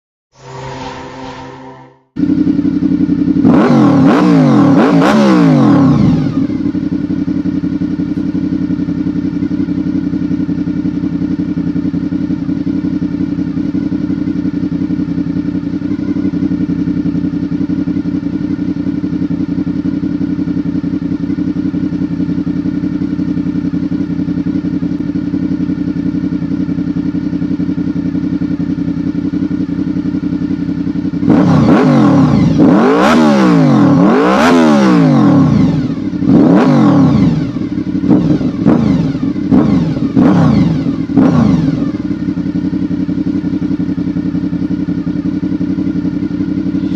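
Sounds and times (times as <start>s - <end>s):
motorcycle engine revving and idling: 2.1s - 46.9s.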